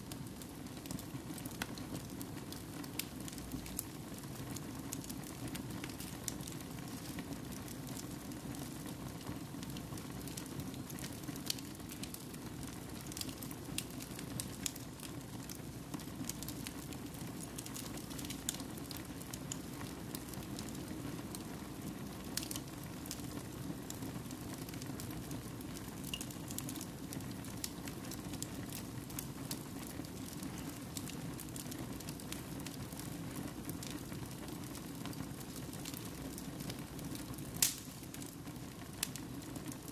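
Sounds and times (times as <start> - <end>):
fire crackling and popping: 0.0 - 39.9
wood fire burning: 0.0 - 39.9.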